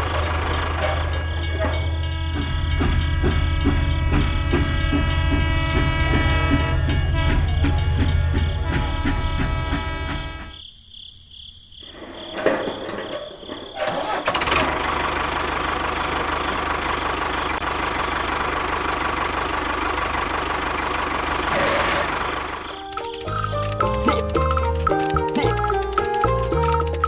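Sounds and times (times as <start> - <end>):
engine starting and running: 0.0 - 10.3, 12.4 - 27.0
knocks: 0.8 - 10.6.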